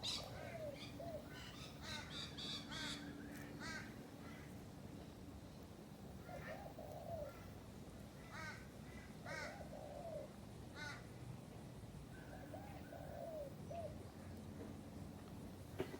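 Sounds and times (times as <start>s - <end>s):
birds sharp calls: 0.0s - 3.9s
birds warbling: 0.0s - 3.9s.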